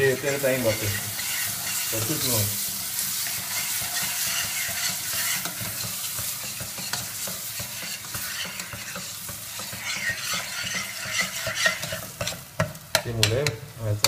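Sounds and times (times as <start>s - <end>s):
food sizzling in a pan: 0.0s - 14.0s
utensil clicking against pan: 3.8s - 13.6s.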